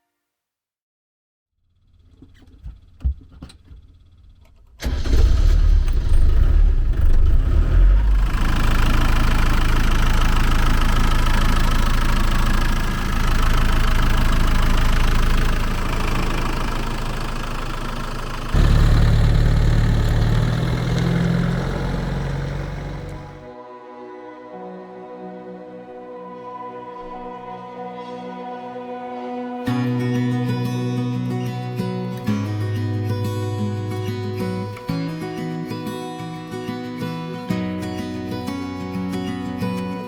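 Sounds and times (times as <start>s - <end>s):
diesel engine starting and running: 1.8s - 23.5s.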